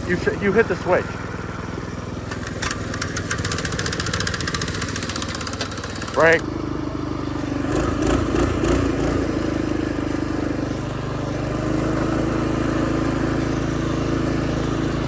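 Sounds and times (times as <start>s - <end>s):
engine knocks: 0.0s - 6.7s
single-cylinder engine running: 0.0s - 15.0s.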